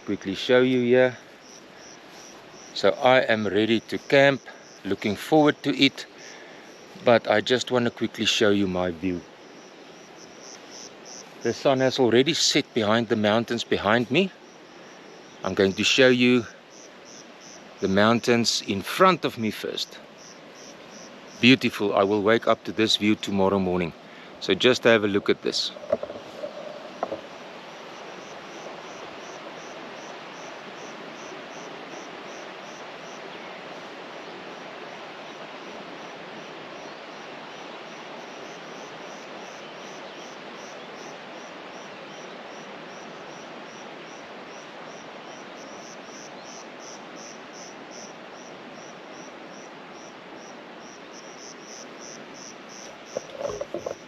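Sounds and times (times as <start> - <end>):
cricket chirping: 0.0 - 54.0
steady outdoor hiss: 0.0 - 54.0.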